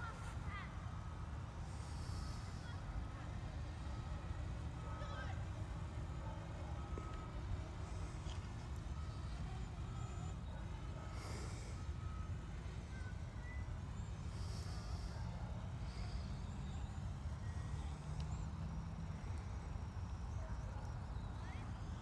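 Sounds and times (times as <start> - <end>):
low outdoor rumble: 0.0 - 22.0
faint high chirps: 6.8 - 22.0.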